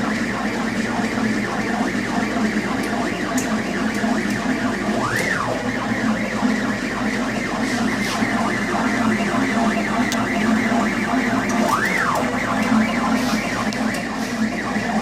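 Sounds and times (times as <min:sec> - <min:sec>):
stepper motors whining: 0:00.0 - 0:15.0.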